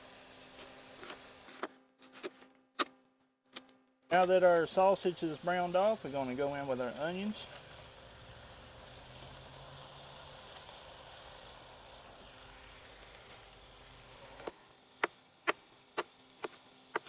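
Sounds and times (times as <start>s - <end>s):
food sizzling in a pot: 0.0s - 1.7s, 4.1s - 17.0s
knife chopping on cutting board: 15.5s - 17.0s.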